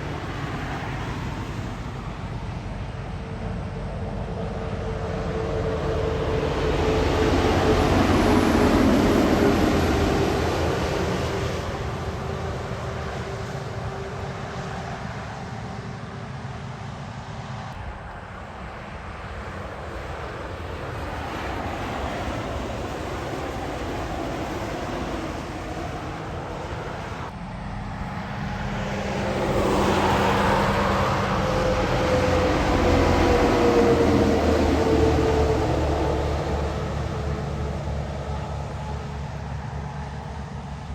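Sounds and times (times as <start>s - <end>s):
truck engine drone: 0.0s - 40.9s
heavy truck passing by: 23.8s - 40.9s.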